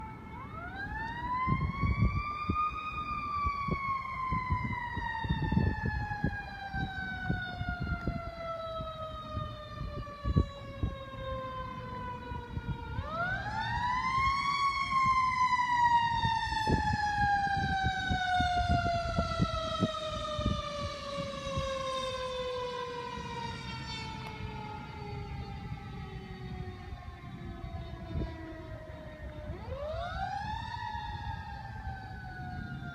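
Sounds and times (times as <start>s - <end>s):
truck engine and road noise: 3.0s - 30.3s.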